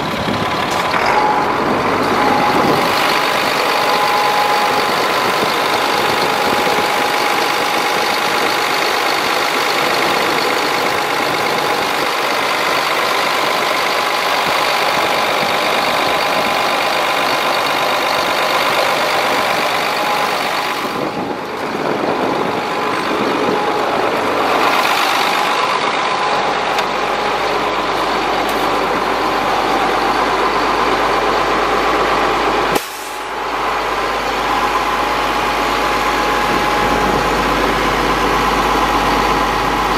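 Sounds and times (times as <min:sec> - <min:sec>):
steady whine: 0:00.0 - 0:39.9
truck engine running: 0:00.0 - 0:39.9.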